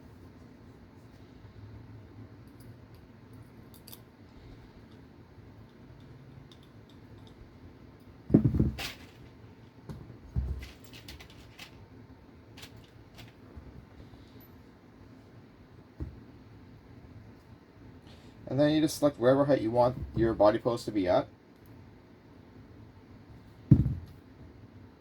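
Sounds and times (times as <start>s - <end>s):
light clicks of parts and tools: 2.4s - 4.1s, 4.8s - 8.2s
thump on workbench: 8.3s - 8.9s, 23.7s - 24.1s.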